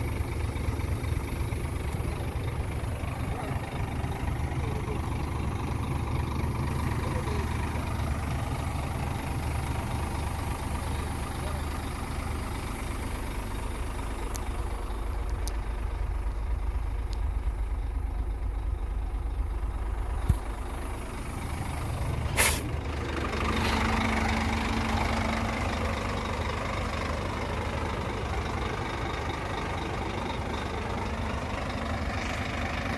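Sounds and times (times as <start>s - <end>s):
diesel truck engine idling: 0.0s - 32.9s
air release hiss: 22.4s - 22.7s.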